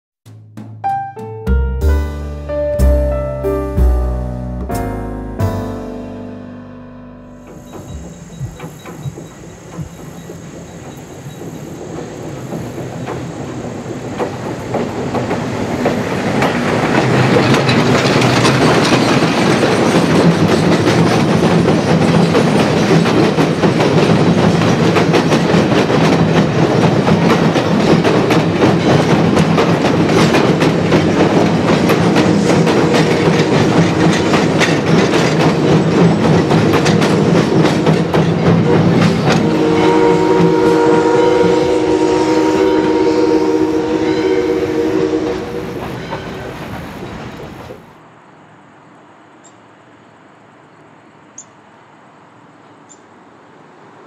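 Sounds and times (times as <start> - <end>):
train rumble: 7.4 - 48.1
train wheels clattering on bridge: 7.5 - 47.9.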